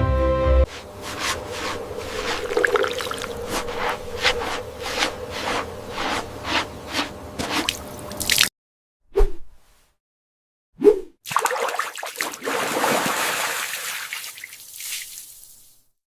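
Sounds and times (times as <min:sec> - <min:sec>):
rhythmic scraping rubbing strokes: 0:00.7 - 0:07.7.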